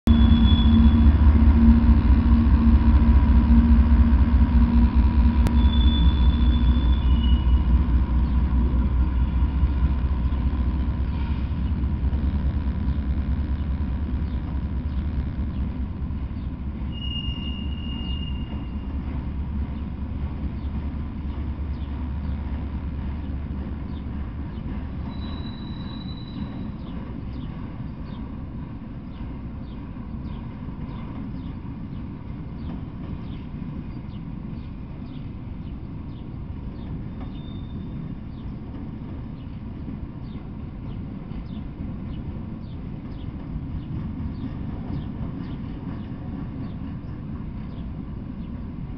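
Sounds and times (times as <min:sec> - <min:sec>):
deep low drone: 0:00.0 - 0:30.7
freight train wheels rumbling: 0:00.0 - 0:48.9
high squeals: 0:00.1 - 0:03.8, 0:05.4 - 0:07.8, 0:16.8 - 0:18.9, 0:25.0 - 0:26.8.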